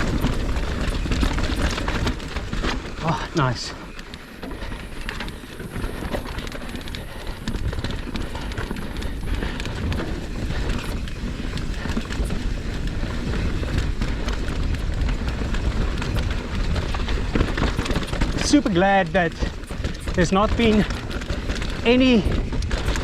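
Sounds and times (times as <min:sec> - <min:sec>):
bike rattling over bumps: 0:00.0 - 0:23.0
bike tyres rumbling on dirt: 0:00.0 - 0:23.0.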